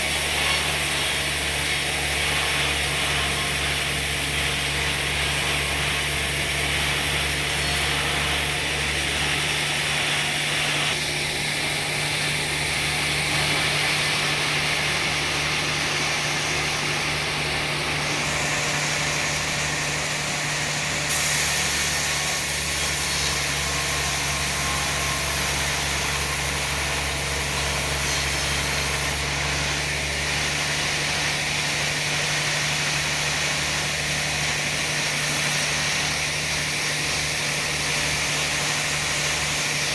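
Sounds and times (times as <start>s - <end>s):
saw cutting: 0.0s - 39.9s
sawmill engine humming: 0.0s - 39.9s.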